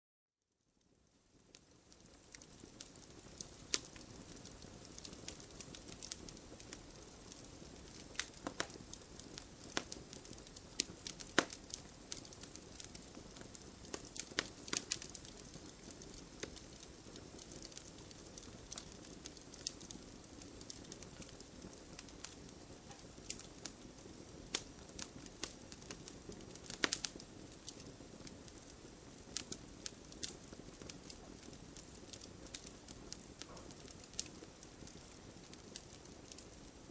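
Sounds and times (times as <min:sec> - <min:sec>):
fire hissing: 0:01.4 - 0:36.7
wood fire pops and snaps: 0:01.4 - 0:36.8.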